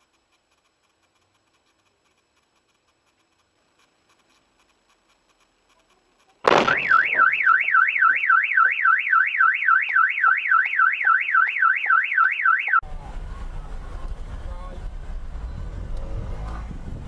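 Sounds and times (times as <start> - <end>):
loud bang: 6.4 - 7.8
car alarm siren warbling: 6.7 - 12.8.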